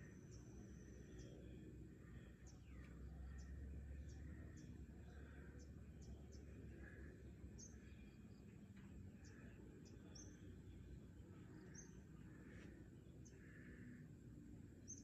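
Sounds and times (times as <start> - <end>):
low background rumble: 0.0 - 15.0
soft distant calls: 0.0 - 15.0.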